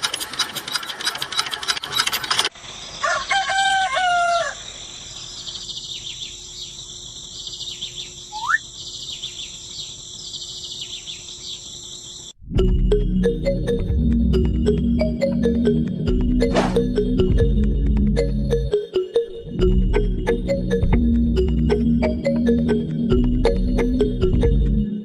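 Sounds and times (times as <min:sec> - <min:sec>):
rattling clatter: 0:00.0 - 0:02.5
rooster crowing: 0:03.0 - 0:04.8
small birds chirping: 0:04.6 - 0:12.4.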